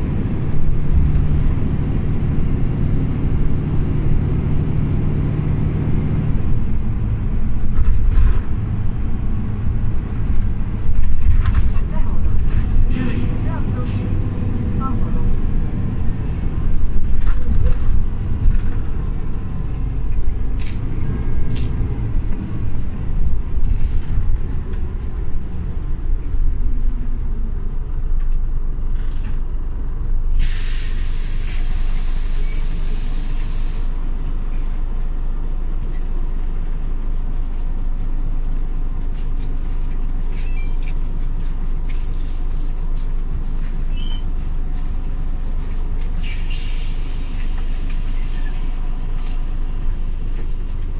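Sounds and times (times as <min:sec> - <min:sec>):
bus engine running: 0:00.0 - 0:50.9
compressed air hissing: 0:30.4 - 0:34.0, 0:46.2 - 0:47.2.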